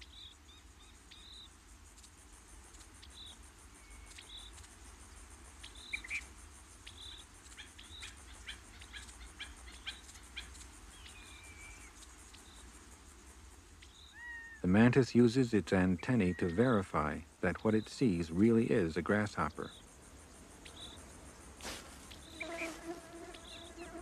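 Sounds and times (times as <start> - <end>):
bird and insect chirps: 0.0 - 24.0
low steady hum: 9.6 - 24.0.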